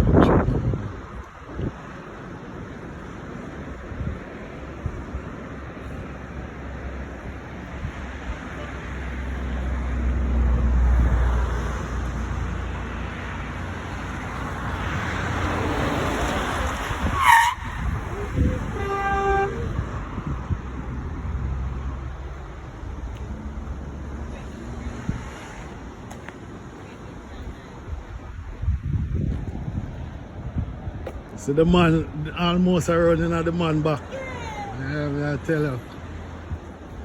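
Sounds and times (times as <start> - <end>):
wind buffeting microphone: 0.0 - 24.0, 27.2 - 32.3
vehicle passing: 2.0 - 26.3
short horn toot: 17.2 - 19.8.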